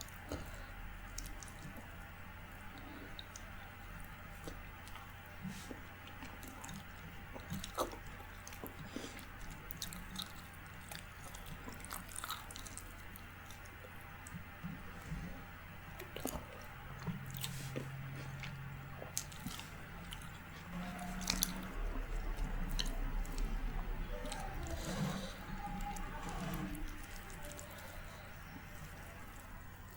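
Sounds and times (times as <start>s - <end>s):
faint low hum: 0.0s - 29.9s
wet chewing sounds: 0.0s - 29.9s.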